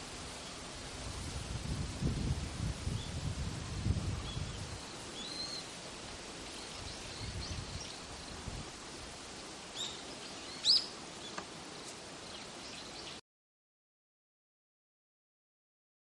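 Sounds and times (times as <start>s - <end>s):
outdoor hiss: 0.0s - 13.2s
bird chirps: 4.2s - 5.7s, 9.7s - 11.4s.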